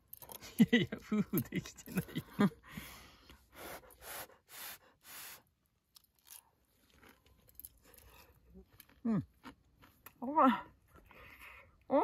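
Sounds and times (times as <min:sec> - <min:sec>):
person biting and chewing food: 0:06.0 - 0:10.2.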